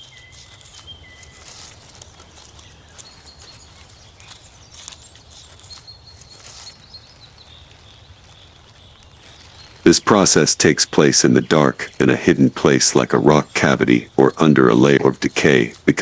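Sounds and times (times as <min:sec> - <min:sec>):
soft crackles and rustles: 0:00.0 - 0:16.0.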